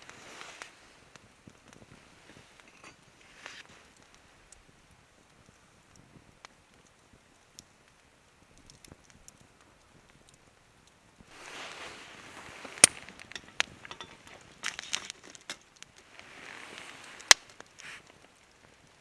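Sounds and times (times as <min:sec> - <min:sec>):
rustling and scraping handling noise: 0:01.8 - 0:03.9, 0:11.3 - 0:18.2
sharp cracks: 0:12.6 - 0:16.0.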